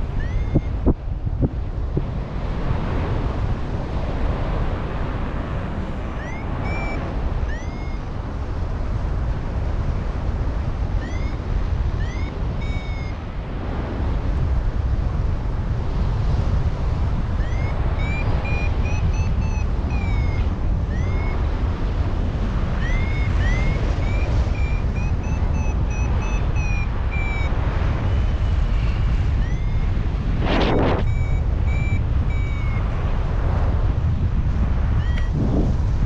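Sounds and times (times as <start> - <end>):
wind buffeting microphone: 0.0 - 36.0
short high rising chirps: 6.2 - 8.0, 29.4 - 32.8.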